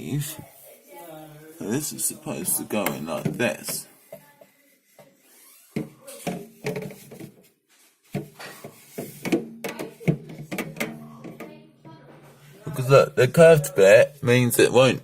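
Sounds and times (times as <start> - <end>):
plastic knocking and clicking: 5.8 - 7.4, 8.1 - 11.6.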